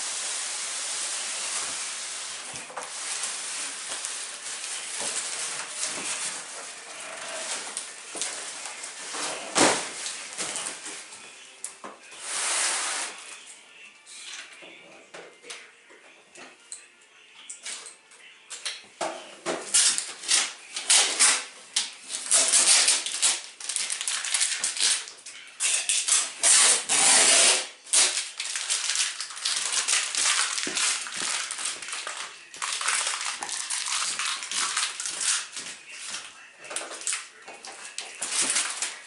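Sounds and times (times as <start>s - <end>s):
cardboard and plastic packaging rustling: 1.2s - 11.3s, 19.4s - 25.2s, 27.9s - 39.0s.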